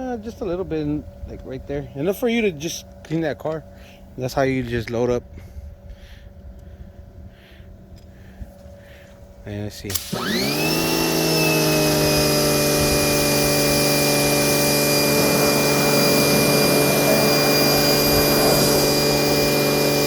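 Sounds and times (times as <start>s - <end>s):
pressure washer motor whining: 9.9s - 20.0s
water spray hiss: 9.9s - 20.0s.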